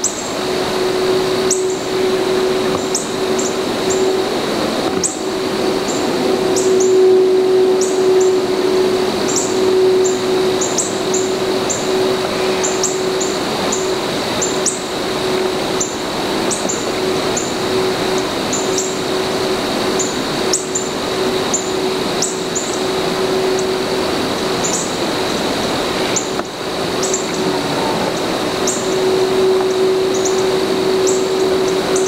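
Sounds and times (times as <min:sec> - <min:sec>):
small bird chip notes: 0:00.0 - 0:19.3, 0:26.0 - 0:32.0
constant high drone: 0:00.0 - 0:32.0
low hum: 0:00.0 - 0:32.0
steady hiss: 0:00.0 - 0:32.0.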